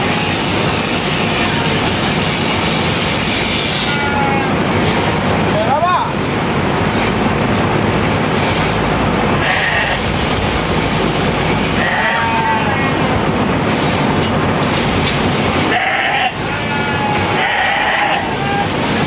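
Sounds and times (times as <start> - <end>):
steady rushing noise: 4.4 - 19.0
sheep bleating: 9.4 - 10.0, 11.8 - 13.0, 15.7 - 18.7.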